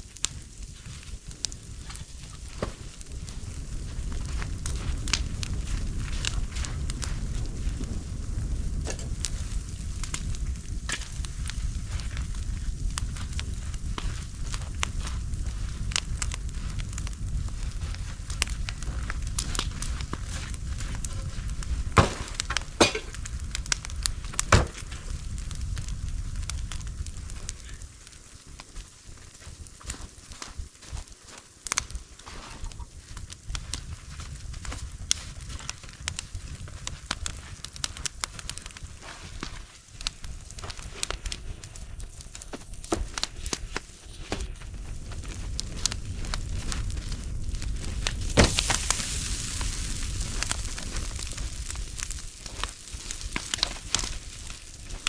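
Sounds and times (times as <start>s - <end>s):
steady low rumble: 0.0s - 28.4s, 32.0s - 55.0s
bonfire crackling: 0.0s - 55.0s
loud sharp pops: 21.9s - 23.2s, 24.4s - 24.9s, 48.1s - 49.7s.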